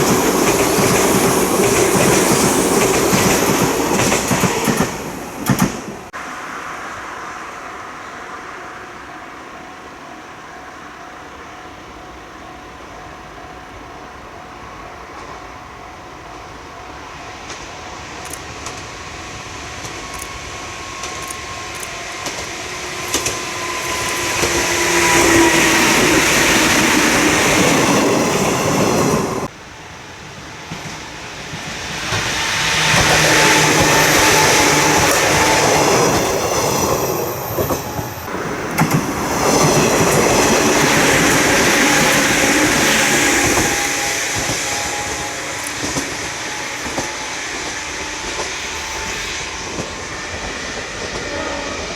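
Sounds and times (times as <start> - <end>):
train wheels over rail joints: 0.0 - 6.1, 17.3 - 29.5, 30.1 - 51.9.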